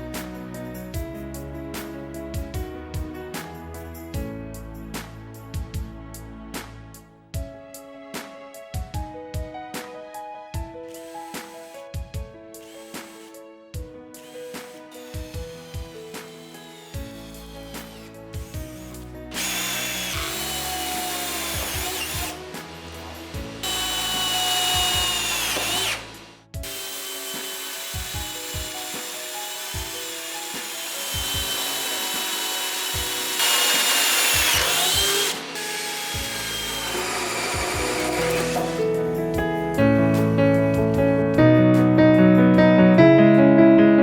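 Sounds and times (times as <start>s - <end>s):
impact drill motor whine: 11.0s - 11.8s, 12.6s - 13.3s, 14.2s - 38.8s.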